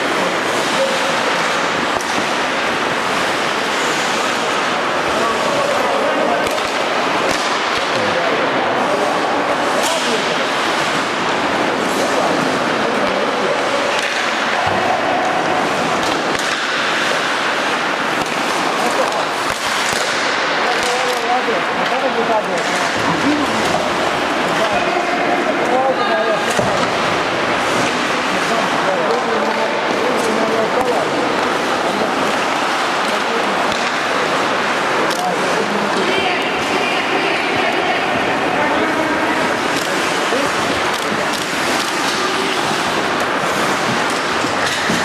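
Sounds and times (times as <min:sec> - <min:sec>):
distant voices: 0:00.0 - 0:45.0
hockey sticks and puck clicking: 0:00.3 - 0:04.6, 0:05.4 - 0:08.2, 0:13.8 - 0:23.9, 0:26.4 - 0:37.8, 0:38.8 - 0:45.0
hockey stick or puck click: 0:18.2 - 0:21.2, 0:39.7 - 0:40.2
skate blades scraping ice: 0:39.4 - 0:45.0.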